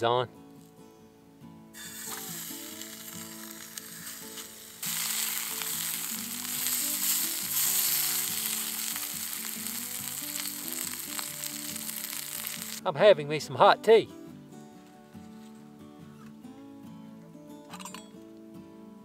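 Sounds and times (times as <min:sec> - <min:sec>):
sausage sizzling in frying pan: 0:01.8 - 0:12.8.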